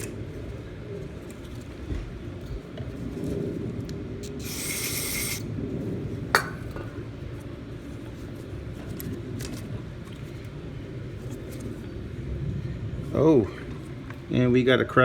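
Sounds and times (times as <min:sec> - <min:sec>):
aerosol spray can hissing: 0:04.2 - 0:05.5.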